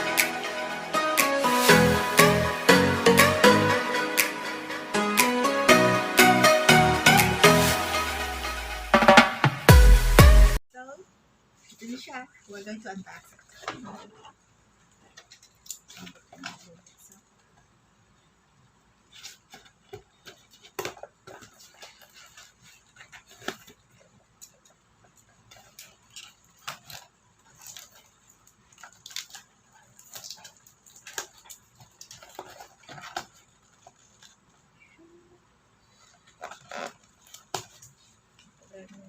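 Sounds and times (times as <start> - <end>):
packaging being opened by hand: 19.1 - 34.6, 35.9 - 38.6.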